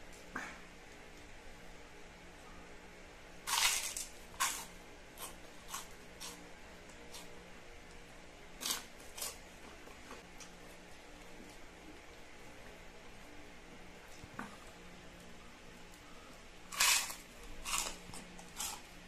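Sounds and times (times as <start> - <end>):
crunching of fried snack: 3.4 - 7.3, 8.6 - 9.4, 16.7 - 18.9.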